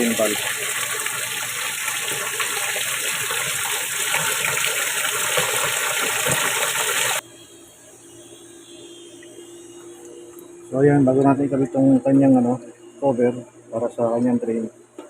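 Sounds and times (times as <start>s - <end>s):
water gushing from a tap: 0.0s - 7.2s.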